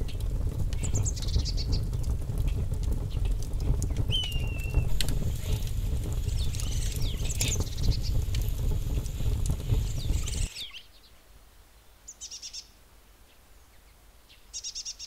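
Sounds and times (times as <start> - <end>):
low rumble: 0.0 - 10.7
oil crackling and popping: 0.0 - 10.7
birds chirping: 0.8 - 2.0, 3.8 - 11.1.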